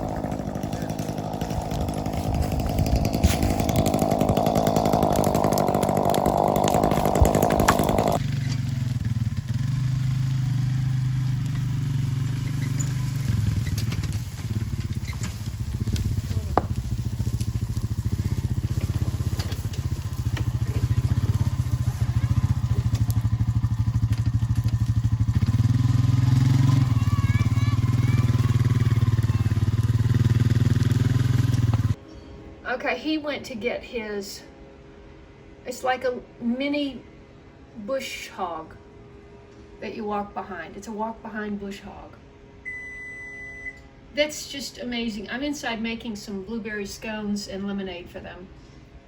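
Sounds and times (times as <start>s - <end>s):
chainsaw running: 0.0s - 32.0s.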